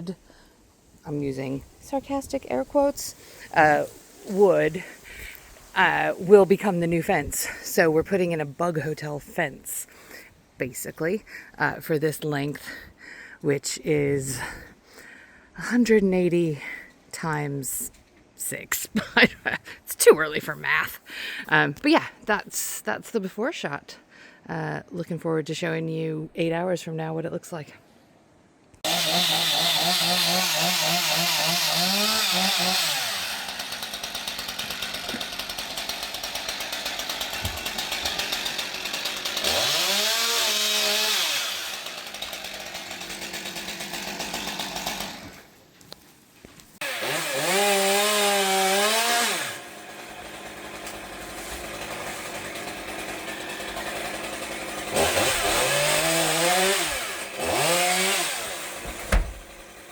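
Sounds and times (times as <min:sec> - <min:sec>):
chainsaw engine revving: 0:28.8 - 0:45.4, 0:46.8 - 0:59.9.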